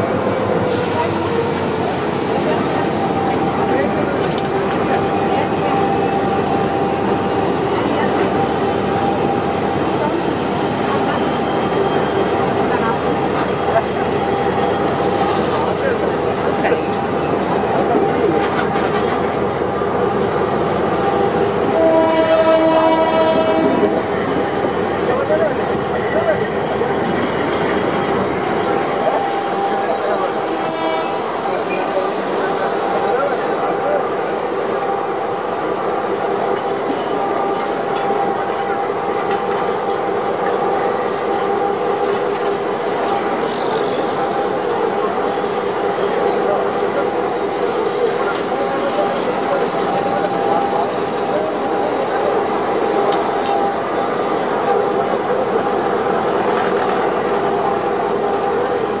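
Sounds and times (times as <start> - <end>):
train wheel and carriage noise: 0.0 - 59.0
train horn blast: 21.6 - 24.0, 30.4 - 31.5.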